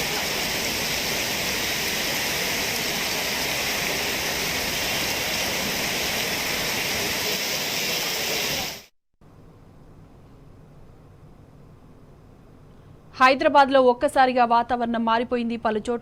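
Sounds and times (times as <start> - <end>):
heavy rain pouring: 0.0 - 8.9.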